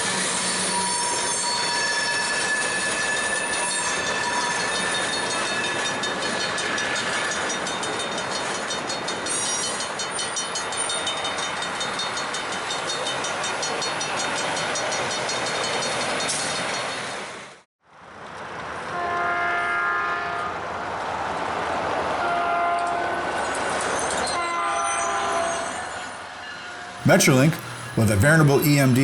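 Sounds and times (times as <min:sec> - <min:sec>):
train wheels squealing on rail: 0:00.0 - 0:17.5, 0:22.1 - 0:27.0
freight train rolling: 0:00.1 - 0:09.8.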